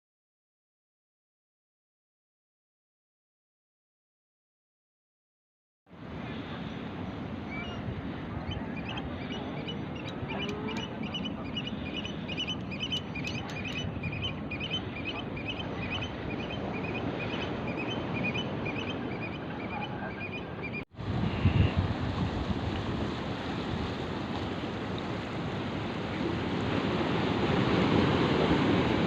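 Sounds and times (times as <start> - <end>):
birds calling: 7.4 - 20.8.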